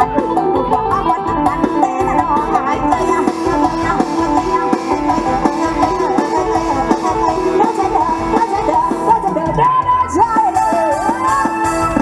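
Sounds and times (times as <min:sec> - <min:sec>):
steady drum beat: 0:01.3 - 0:10.6
drone notes: 0:02.9 - 0:09.2.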